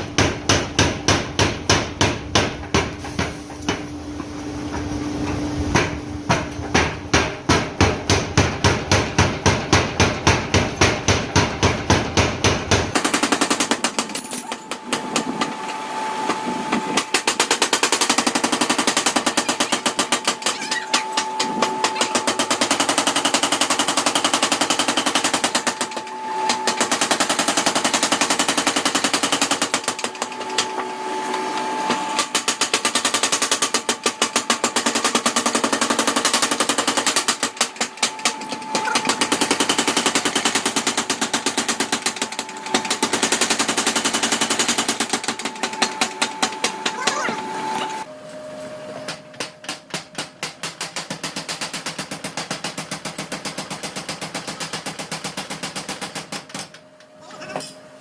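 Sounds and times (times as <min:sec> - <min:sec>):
power hammer pounding hot steel: 0:00.0 - 0:03.8, 0:05.7 - 0:30.8, 0:31.6 - 0:47.3.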